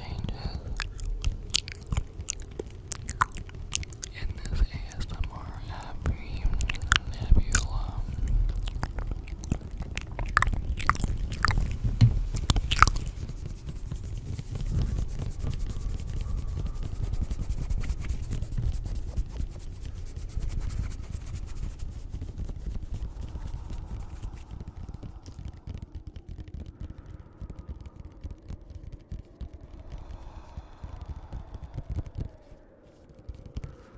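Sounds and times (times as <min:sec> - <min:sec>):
low rumble: 0:00.0 - 0:33.9.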